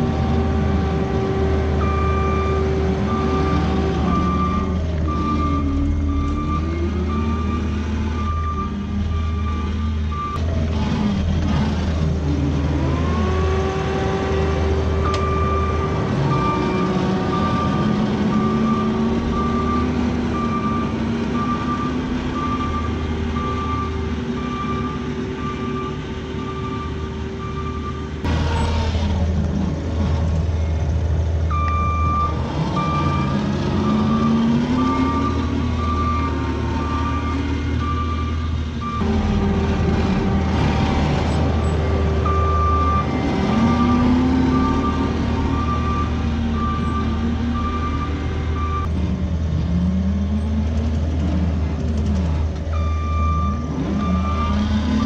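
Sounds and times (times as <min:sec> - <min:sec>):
diesel engine working: 0:00.0 - 0:55.0
reversing alarm beeping: 0:01.2 - 0:10.4, 0:15.0 - 0:28.2, 0:31.5 - 0:49.0, 0:52.7 - 0:55.0.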